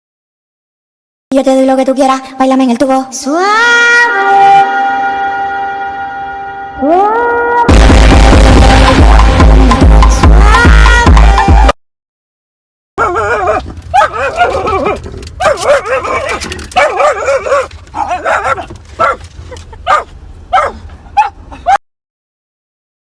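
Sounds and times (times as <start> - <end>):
dog whining and yipping: 13.0 - 21.8.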